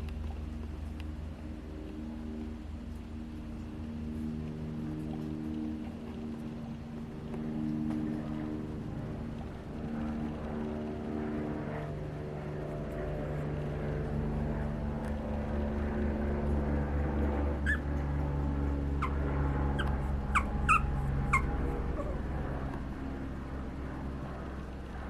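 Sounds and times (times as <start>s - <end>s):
low mechanical hum: 0.0s - 25.0s
puppy squeaks: 17.6s - 17.9s, 19.0s - 22.2s.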